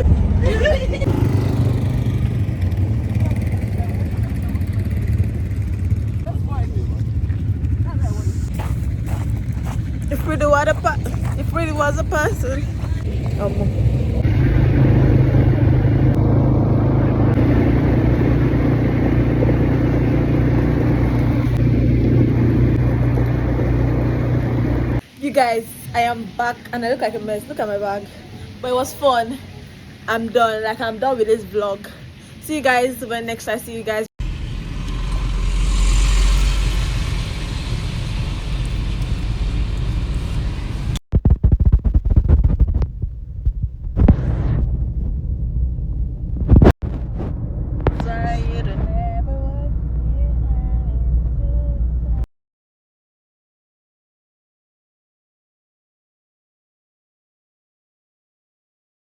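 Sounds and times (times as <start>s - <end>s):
quad bike engine droning: 0.0s - 25.0s, 46.9s - 52.3s
vehicle road noise: 0.0s - 25.2s, 34.2s - 41.0s, 42.2s - 52.3s.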